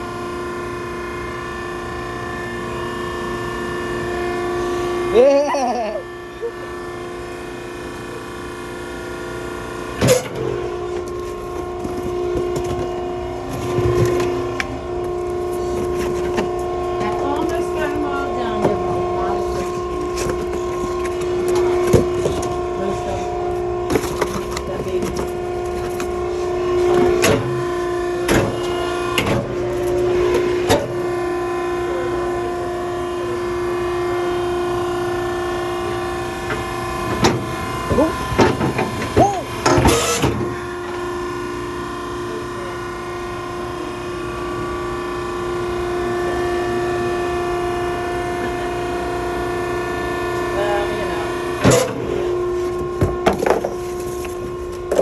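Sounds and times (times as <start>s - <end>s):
hydraulic power unit whining: 0.0s - 55.0s.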